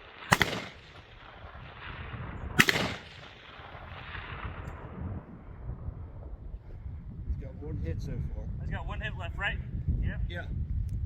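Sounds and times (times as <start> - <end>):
gunshot with echo: 0.0 - 2.0, 2.6 - 4.7.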